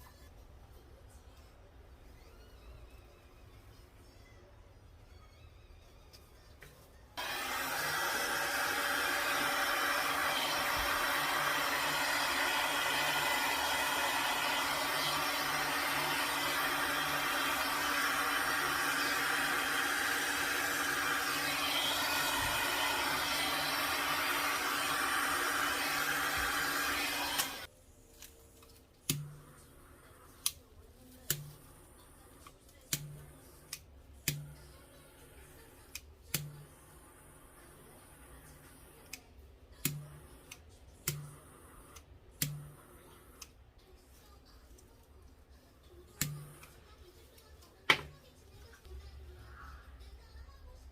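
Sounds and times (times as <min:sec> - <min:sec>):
hot-air blower running: 0:07.2 - 0:27.7.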